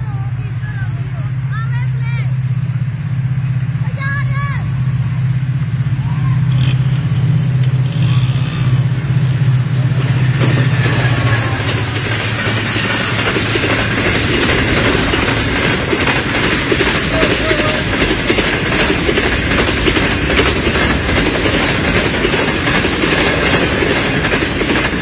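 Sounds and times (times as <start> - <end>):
loud train rumble: 0.0 - 25.0
train wheels clacking over rail joints: 6.5 - 25.0.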